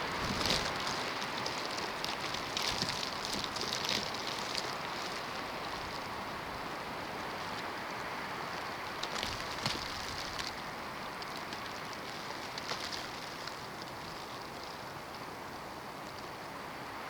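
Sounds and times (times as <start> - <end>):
light ticks and patters: 0.0 - 16.6.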